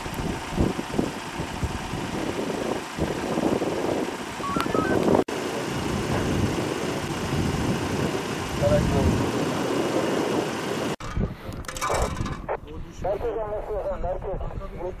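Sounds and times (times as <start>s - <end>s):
vehicle engine idling: 0.0s - 11.0s
short electronic beeps: 4.4s - 5.0s.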